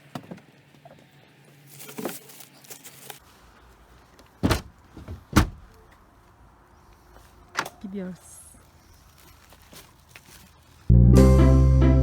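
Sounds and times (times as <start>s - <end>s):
short rustle: 8.6s - 10.9s.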